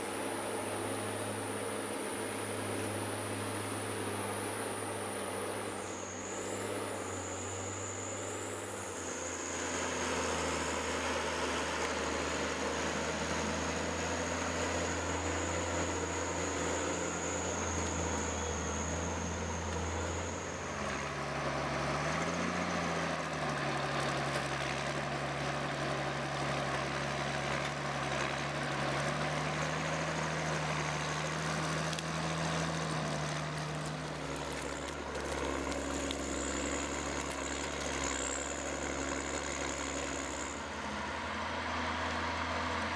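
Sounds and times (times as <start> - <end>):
machinery humming with high whine: 0.0 - 21.9.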